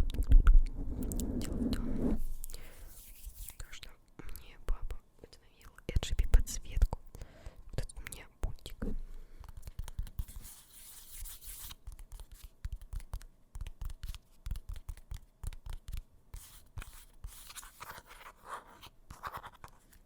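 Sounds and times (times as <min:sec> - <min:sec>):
scratchy rubbing on microphone: 0:00.7 - 0:03.8, 0:10.1 - 0:12.5.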